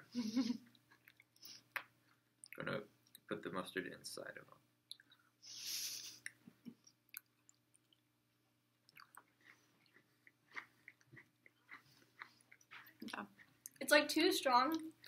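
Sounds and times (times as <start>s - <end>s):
chewing and crunching cookies: 0.6s - 3.3s, 6.2s - 8.2s, 8.8s - 13.9s
short breathy hiss: 5.4s - 6.2s.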